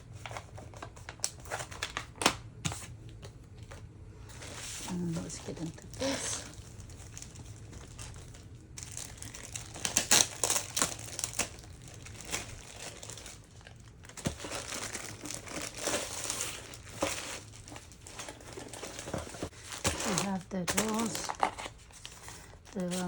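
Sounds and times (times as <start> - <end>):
packaging crinkling: 0.2 - 3.8, 4.4 - 23.0.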